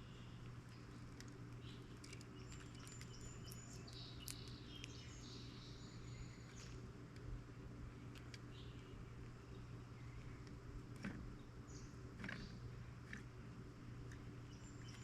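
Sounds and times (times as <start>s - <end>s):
small birds chirping: 0.0s - 7.3s, 7.9s - 15.0s
steady low hum: 0.0s - 15.0s
light clicks: 2.0s - 5.0s.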